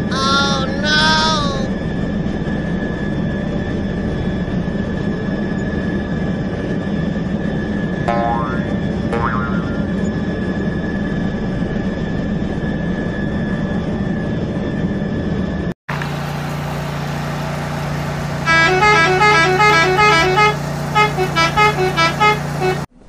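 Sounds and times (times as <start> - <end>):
steady hum: 8.1 - 10.4.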